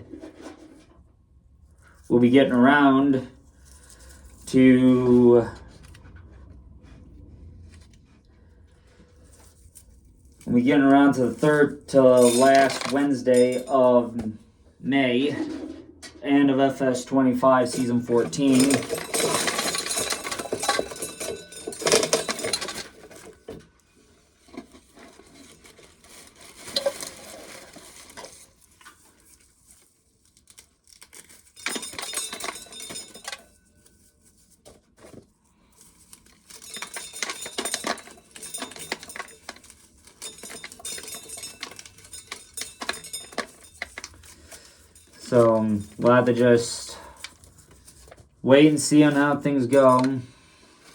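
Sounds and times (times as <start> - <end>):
corn kernels rattling into tub: 10.4 - 14.1, 16.7 - 23.4.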